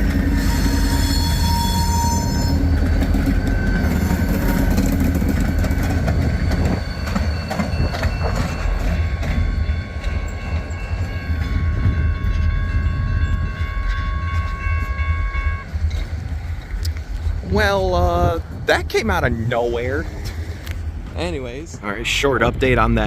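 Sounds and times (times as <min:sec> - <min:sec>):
locomotive rumble: 0:00.0 - 0:23.0
high-pitched wheel squeal: 0:00.3 - 0:07.8.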